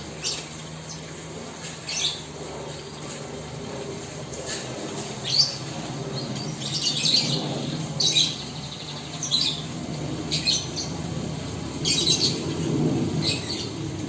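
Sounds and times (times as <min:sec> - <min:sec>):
pet birds chirping and squawking: 0:00.2 - 0:01.1, 0:01.8 - 0:02.3, 0:04.5 - 0:11.0, 0:11.8 - 0:12.6.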